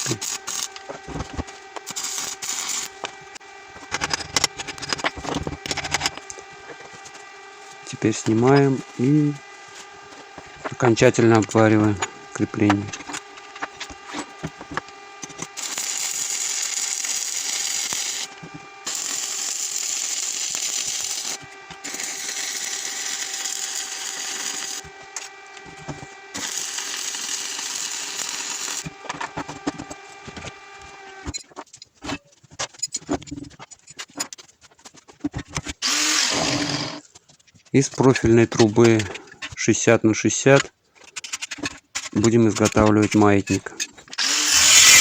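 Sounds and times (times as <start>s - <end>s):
arc welding crackling hiss: 0.0s - 31.1s, 35.8s - 37.0s, 44.2s - 45.0s
sharp clicks and knocks: 3.8s - 7.3s, 10.1s - 15.6s.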